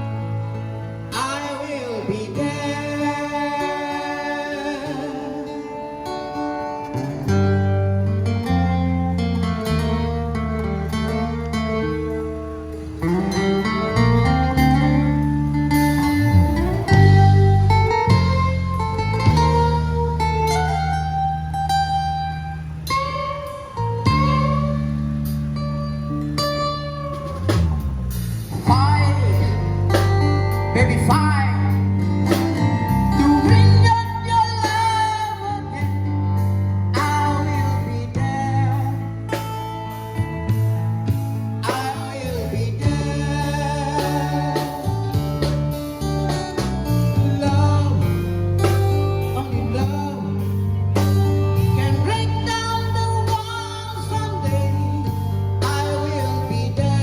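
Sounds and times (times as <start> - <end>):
guitar accompaniment: 0.0 - 57.0
steady bass line: 0.0 - 57.0
man singing with vibrato: 1.0 - 7.8, 9.4 - 39.4, 41.5 - 46.4, 47.0 - 57.0.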